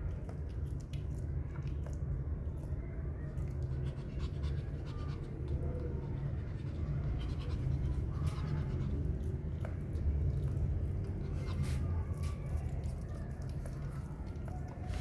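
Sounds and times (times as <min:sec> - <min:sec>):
puppy panting: 0:03.5 - 0:09.5, 0:10.8 - 0:12.1.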